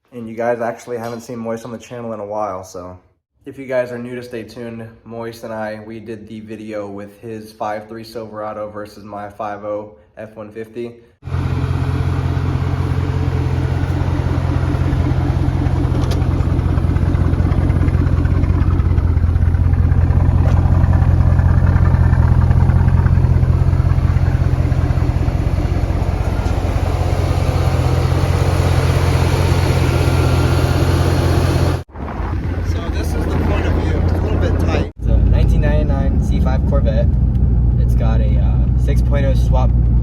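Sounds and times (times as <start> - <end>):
car engine running at low revs: 11.2 - 40.0.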